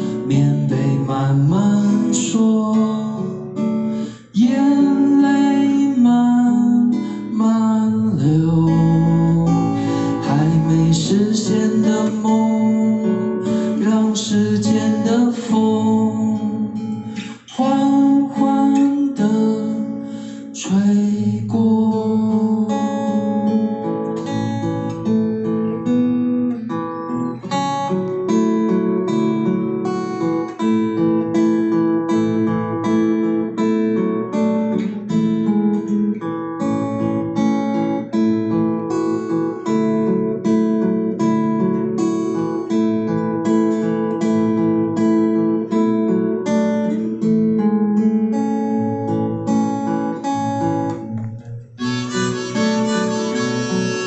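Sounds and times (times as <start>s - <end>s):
acoustic guitar plucked notes: 0.0s - 54.0s
harmonica: 51.8s - 54.0s.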